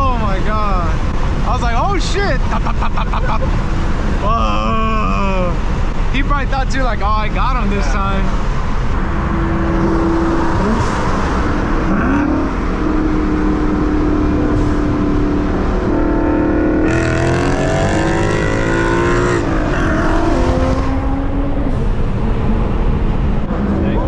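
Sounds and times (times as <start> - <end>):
car engines running: 0.0 - 24.0
engine revving: 8.9 - 23.4.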